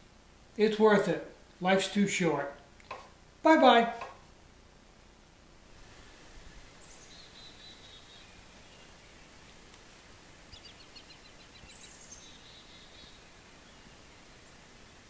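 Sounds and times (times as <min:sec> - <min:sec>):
outdoor hiss: 0:00.0 - 0:15.0
faint bird song: 0:05.8 - 0:15.0.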